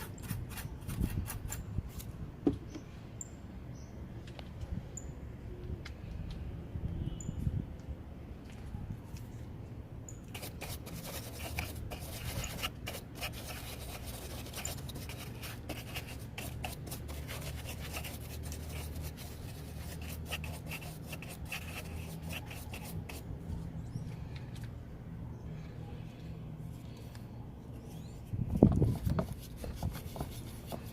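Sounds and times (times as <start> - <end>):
brush scrubbing: 10.3 - 23.2, 28.8 - 30.9.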